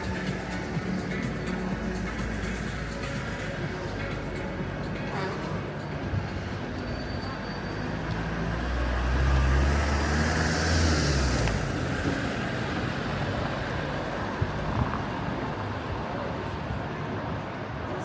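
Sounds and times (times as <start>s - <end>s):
traffic noise: 0.0s - 18.0s
vehicle passing by: 8.0s - 13.2s.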